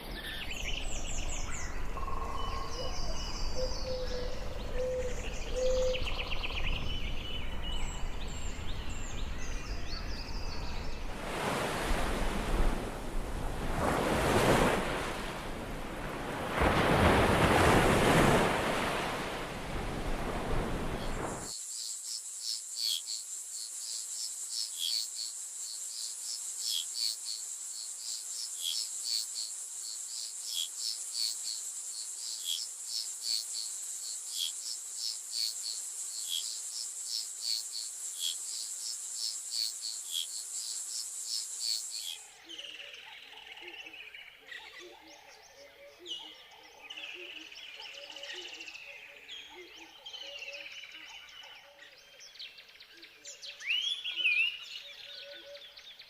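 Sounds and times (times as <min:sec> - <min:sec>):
bird calls and chirps: 0:00.0 - 0:11.1, 0:41.7 - 0:56.0
pulsing insect trill: 0:20.9 - 0:42.3.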